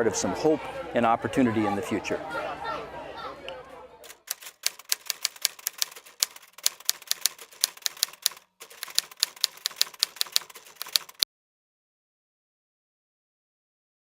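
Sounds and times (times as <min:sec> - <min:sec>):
typewriter keys clacking: 0:04.1 - 0:11.2.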